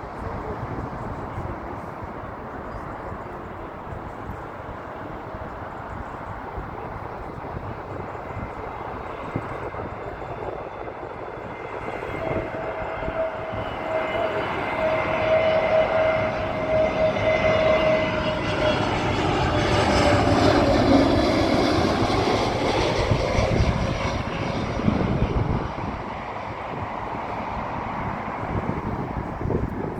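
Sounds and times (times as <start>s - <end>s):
airliner jet engines passing: 0.0s - 29.9s.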